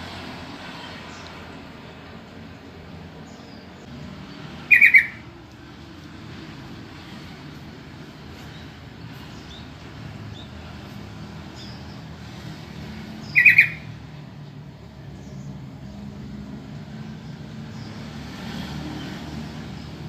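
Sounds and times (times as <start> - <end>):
bird call notes: 4.6 - 5.3, 13.2 - 14.0.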